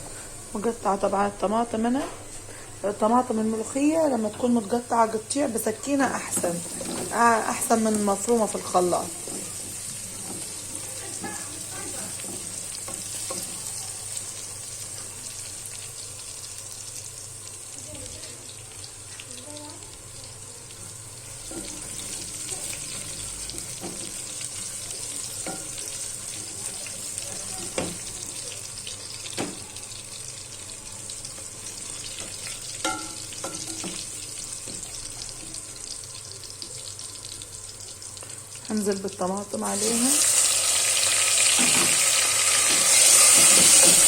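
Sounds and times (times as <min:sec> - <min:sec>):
garlic sizzling in hot oil: 0:00.0 - 0:44.0.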